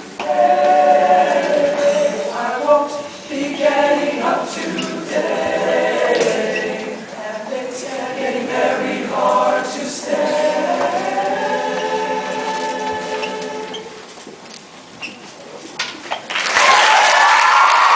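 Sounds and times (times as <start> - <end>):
choir singing in harmony: 0.0 - 14.1.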